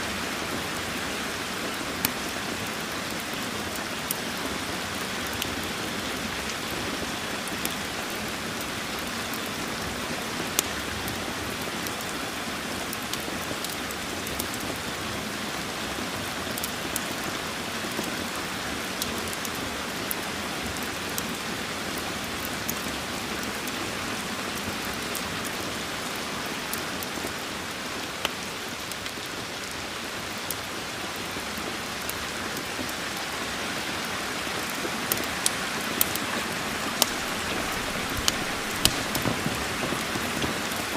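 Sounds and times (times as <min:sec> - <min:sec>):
heavy rain: 0:00.0 - 0:40.9
wood fire crackling: 0:16.5 - 0:18.0, 0:34.6 - 0:40.9.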